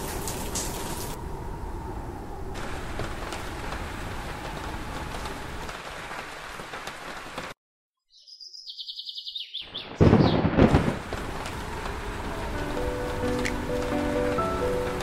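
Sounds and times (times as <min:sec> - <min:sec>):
rain hiss: 0:00.0 - 0:01.2, 0:02.6 - 0:07.6, 0:10.0 - 0:15.0
thunderclap rumbling: 0:00.0 - 0:07.5, 0:09.8 - 0:15.0.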